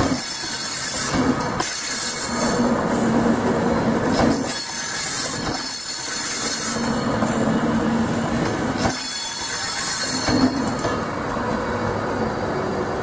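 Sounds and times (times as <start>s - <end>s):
train wheels rumbling: 0.0s - 13.0s
wheels clacking over rail joints: 4.0s - 7.5s, 8.1s - 11.1s.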